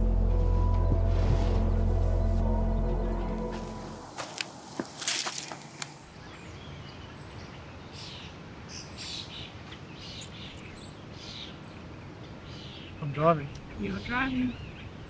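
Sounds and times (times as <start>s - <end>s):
outdoor ambience: 0.0s - 15.0s
small birds chirping: 5.4s - 15.0s.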